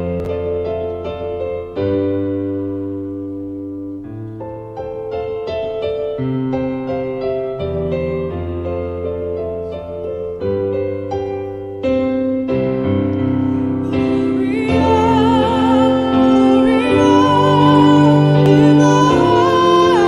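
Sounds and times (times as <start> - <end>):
slow piano notes: 0.0 - 20.0
sustained notes with vibrato: 13.4 - 20.0.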